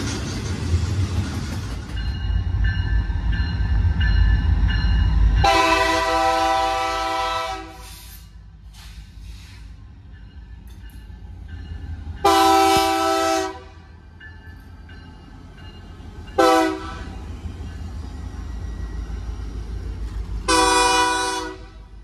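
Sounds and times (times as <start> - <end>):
diesel locomotive engines rumbling: 0.0 - 22.0
locomotive air horn blasts: 5.4 - 8.1, 12.2 - 13.8, 16.4 - 17.1, 20.5 - 21.9.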